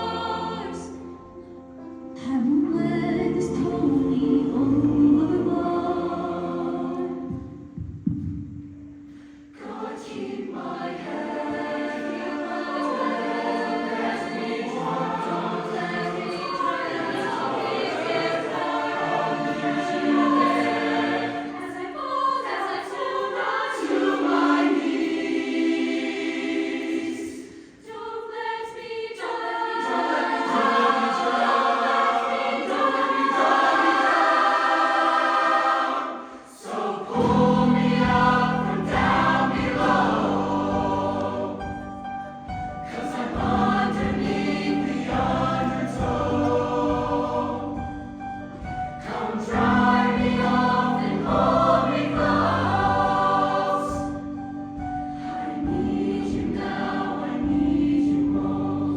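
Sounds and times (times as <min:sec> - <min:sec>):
choir singing: 0:00.0 - 0:07.8, 0:09.4 - 0:58.9.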